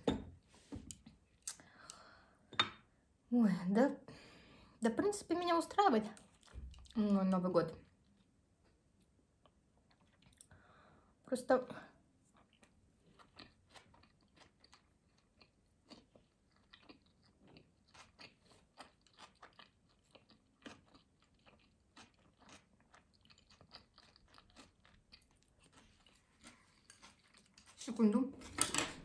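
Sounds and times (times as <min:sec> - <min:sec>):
chewing with crunchy clicks: 0:09.4 - 0:10.5, 0:12.2 - 0:27.9.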